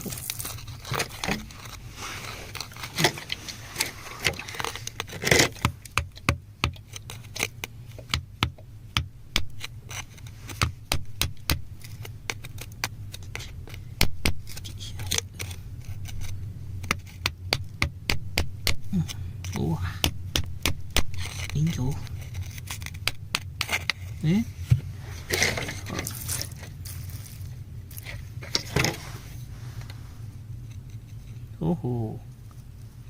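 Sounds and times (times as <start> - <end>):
stones scraped out of rock: 0.0 - 5.6, 14.4 - 16.4, 21.0 - 24.2, 25.2 - 29.4
low steady hum: 0.0 - 33.0.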